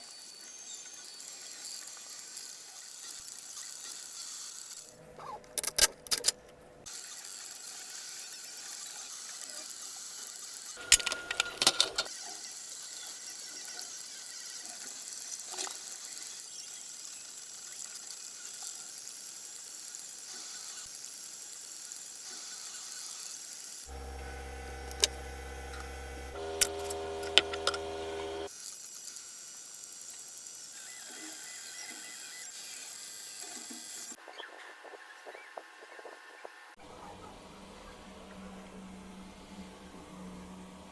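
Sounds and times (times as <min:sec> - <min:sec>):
small motor humming whine: 0:23.9 - 0:28.5.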